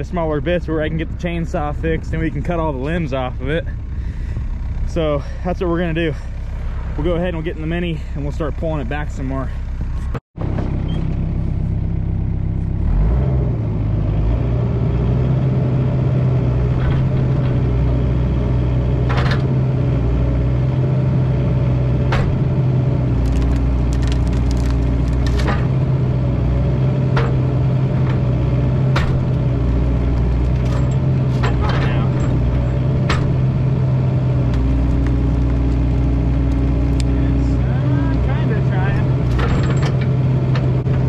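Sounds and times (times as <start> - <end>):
diesel engine under load: 0.0 - 41.0
sharp cracks and clatters: 23.1 - 25.8.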